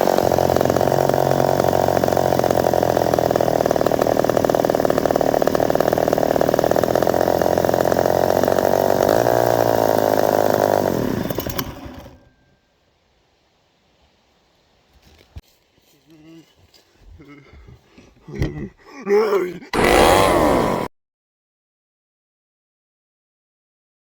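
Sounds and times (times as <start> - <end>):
chainsaw engine running: 0.0 - 12.3, 19.7 - 20.9.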